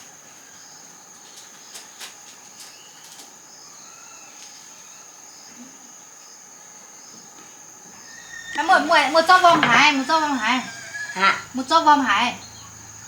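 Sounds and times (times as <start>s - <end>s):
insects droning: 0.0s - 13.0s
faint chirps: 2.6s - 13.0s.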